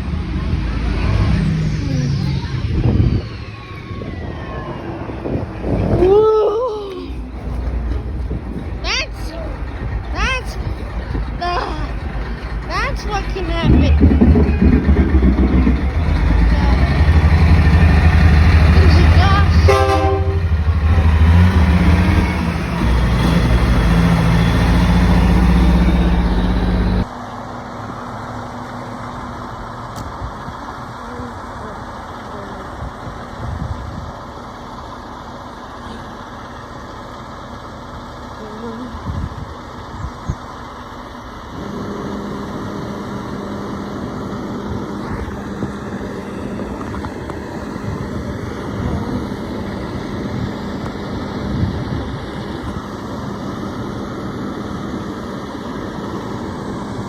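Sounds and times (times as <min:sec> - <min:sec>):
steady drone: 0:00.0 - 0:06.0, 0:08.8 - 0:29.7, 0:41.2 - 0:57.0
truck engine running: 0:00.0 - 0:06.0, 0:07.0 - 0:57.0.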